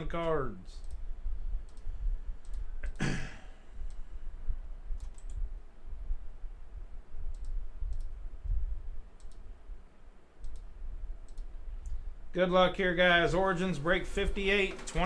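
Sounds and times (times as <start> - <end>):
card packs clicking on table: 14.6 - 15.0.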